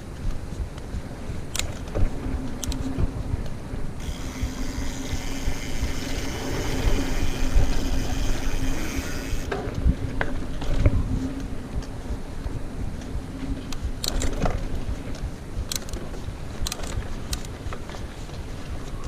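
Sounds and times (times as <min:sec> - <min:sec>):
constant hum: 0:00.0 - 0:19.0
wind on the microphone: 0:00.0 - 0:19.0
bike tyres rumbling on dirt: 0:04.0 - 0:11.2
bike knocking and rattling: 0:04.0 - 0:11.3, 0:13.0 - 0:19.0.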